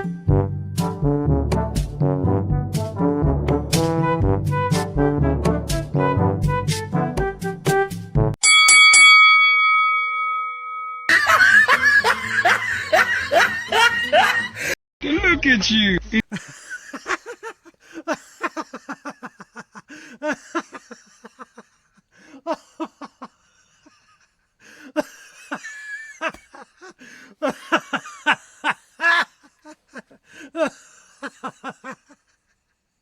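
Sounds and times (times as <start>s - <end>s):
person laughing: 16.3s - 32.5s.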